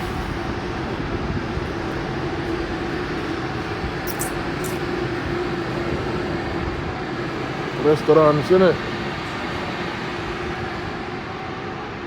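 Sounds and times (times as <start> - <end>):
high clicks: 4.1 - 4.8.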